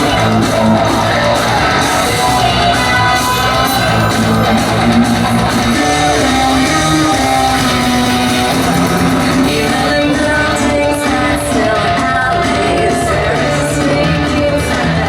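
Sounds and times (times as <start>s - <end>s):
loud guitar rock music: 0.0s - 15.0s.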